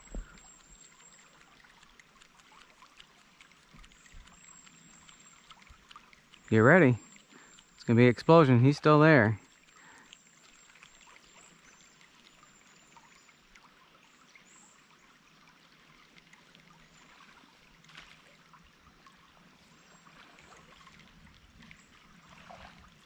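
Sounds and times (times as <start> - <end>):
small tick: 0.0 - 7.9, 9.4 - 14.8
river water trickling: 0.0 - 23.0.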